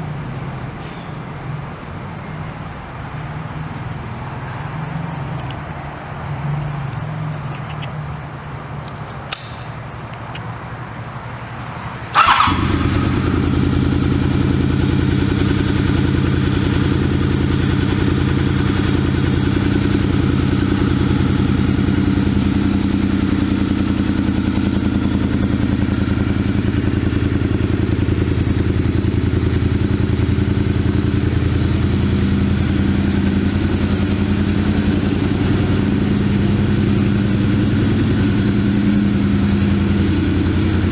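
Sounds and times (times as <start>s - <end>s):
motorcycle engine starting and idling: 8.9s - 10.4s, 12.1s - 40.9s.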